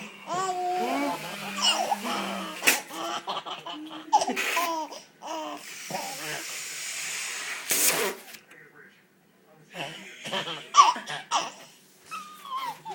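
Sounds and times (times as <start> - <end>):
baby laughing: 0.3 - 6.2, 10.4 - 12.9.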